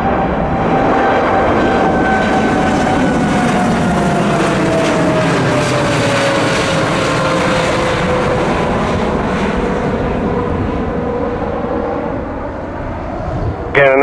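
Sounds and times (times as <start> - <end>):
jet engine roaring: 0.0 - 14.0.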